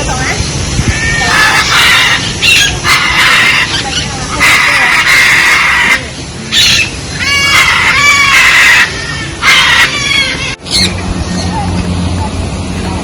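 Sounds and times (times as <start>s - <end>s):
harsh bird screeches: 0.8s - 10.9s.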